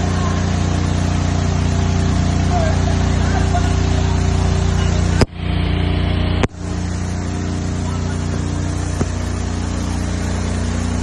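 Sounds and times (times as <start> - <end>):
fire truck engine humming: 0.0 - 11.0.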